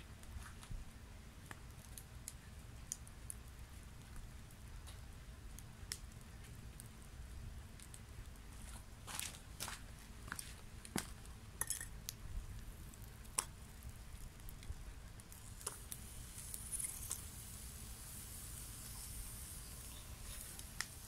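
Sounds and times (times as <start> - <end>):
wood fire crackling: 0.0 - 21.0
faint high hiss: 11.3 - 21.0.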